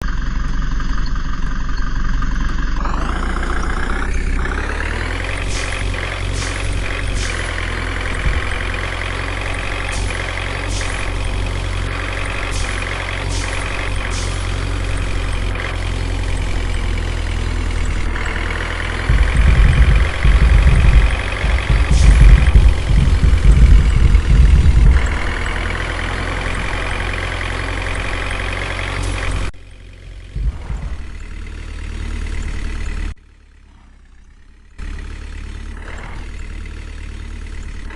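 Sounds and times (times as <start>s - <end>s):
truck engine running: 0.0s - 37.9s
loud low thumps and rumbling: 2.8s - 33.2s.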